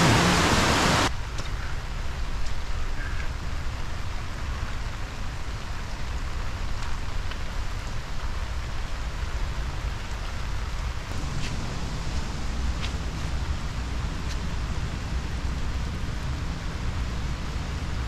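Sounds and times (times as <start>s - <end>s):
heavy rain hissing: 0.0s - 18.0s
raindrop ticks: 1.2s - 16.4s
low rumble: 10.8s - 18.0s.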